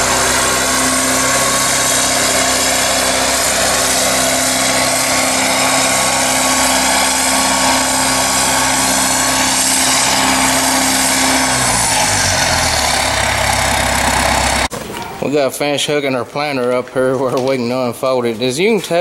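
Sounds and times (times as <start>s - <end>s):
tractor diesel engine running: 0.0s - 14.7s.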